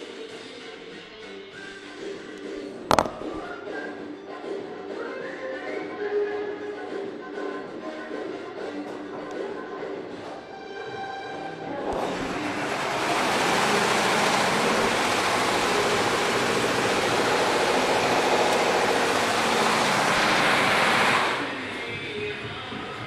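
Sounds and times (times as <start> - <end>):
embroidery machine clattering: 11.9 - 21.7.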